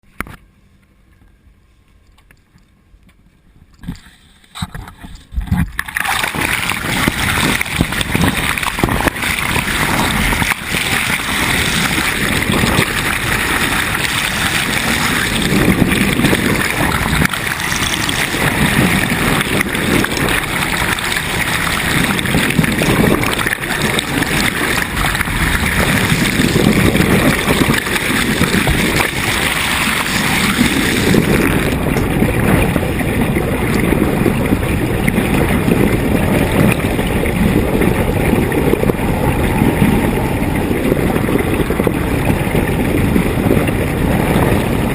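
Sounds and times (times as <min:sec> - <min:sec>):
wind buffeting microphone: 0:03.7 - 0:44.9
water rushing past hull: 0:03.9 - 0:44.9.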